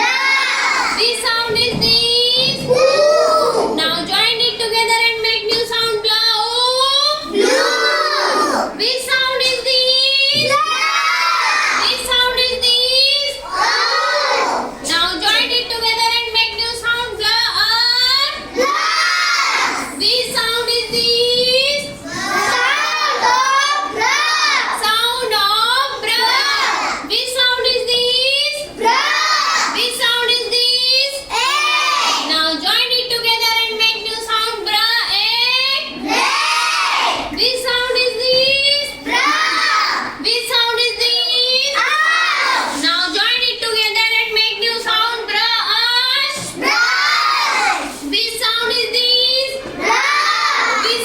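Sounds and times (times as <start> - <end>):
children chanting in unison: 0.0 - 1.0, 7.3 - 8.8, 10.6 - 11.9, 13.4 - 14.8, 18.4 - 20.0, 22.0 - 24.8, 26.2 - 27.1, 28.8 - 29.8, 31.3 - 32.3, 36.0 - 37.3, 39.1 - 40.2, 41.8 - 42.8, 46.6 - 48.0, 49.8 - 51.0.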